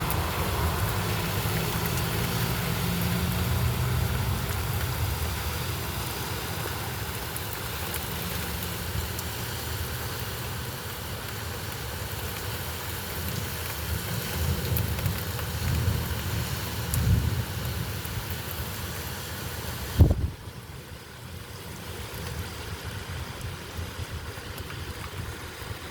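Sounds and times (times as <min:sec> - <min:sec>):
raindrop ticks: 0:00.0 - 0:19.0, 0:22.0 - 0:25.8
steady rain: 0:00.0 - 0:25.9
low thunder rumble: 0:14.4 - 0:18.3.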